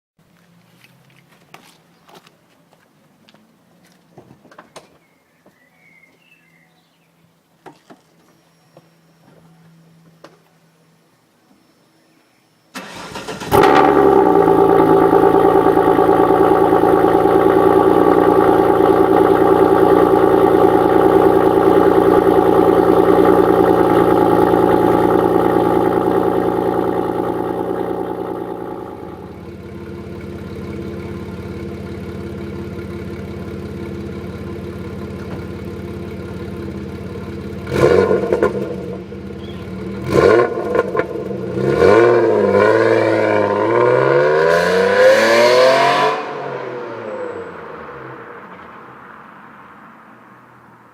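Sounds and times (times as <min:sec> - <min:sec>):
car engine starting and idling: 0:12.7 - 0:50.9.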